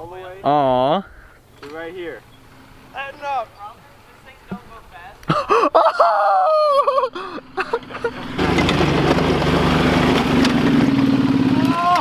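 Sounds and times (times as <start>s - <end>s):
small engine running: 7.2s - 12.0s.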